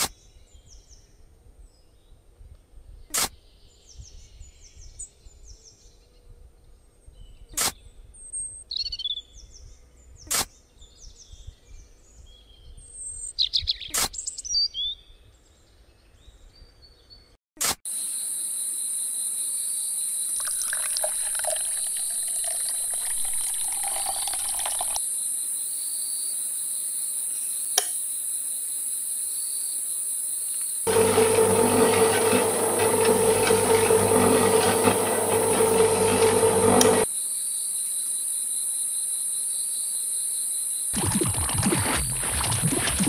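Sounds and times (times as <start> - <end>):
wet concrete pouring into bucket: 20.4 - 25.0, 30.9 - 37.0, 41.0 - 43.0
small electric motor humming: 30.9 - 37.1
spoon scraping cement mix: 41.0 - 43.0.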